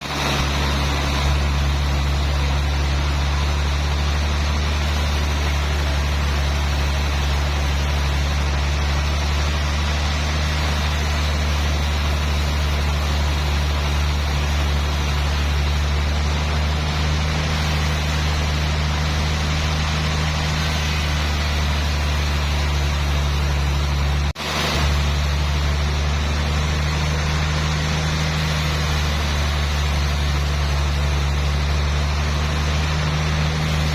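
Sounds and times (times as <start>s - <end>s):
sawmill machinery drone: 0.0s - 33.9s.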